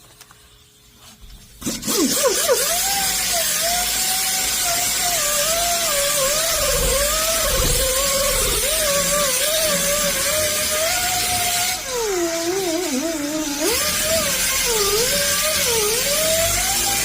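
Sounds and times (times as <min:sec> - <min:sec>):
rotary polisher motor whine: 0:01.8 - 0:17.0
gritty grinding hiss: 0:04.9 - 0:11.2.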